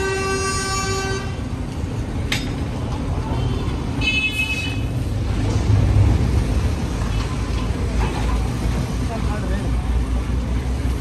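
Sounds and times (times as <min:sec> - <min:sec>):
vehicle horn: 0:00.0 - 0:01.4, 0:03.4 - 0:04.9
road traffic rumble: 0:00.0 - 0:11.0.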